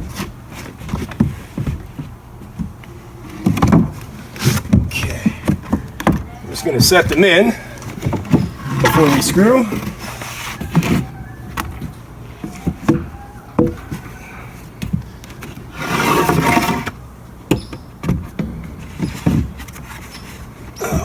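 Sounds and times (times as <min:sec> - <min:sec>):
wooden boards scraping: 0:00.0 - 0:21.0
wood knocking on wood: 0:00.9 - 0:10.0, 0:10.6 - 0:14.2.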